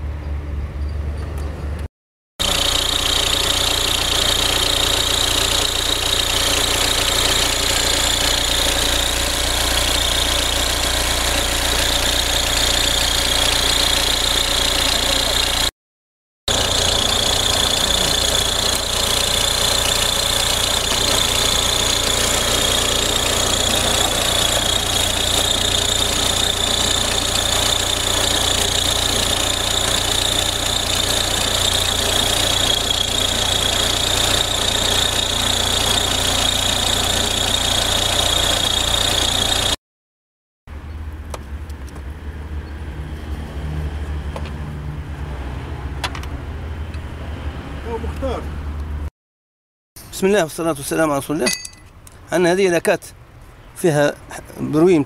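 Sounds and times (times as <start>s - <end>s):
diesel engine clatter: 0.2s - 15.7s, 16.5s - 39.8s.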